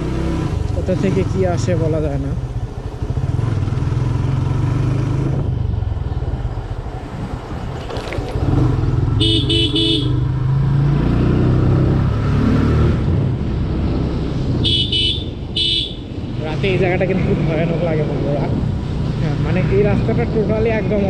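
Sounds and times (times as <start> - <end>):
motorcycle engine running: 8.3 - 10.3
horn beeps: 9.2 - 10.2, 14.6 - 16.0.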